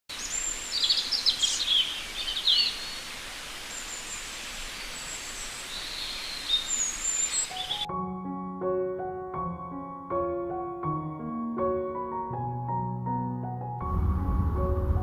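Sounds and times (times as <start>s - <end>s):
small birds chirping: 0.1s - 7.9s
steady outdoor hiss: 0.1s - 7.9s.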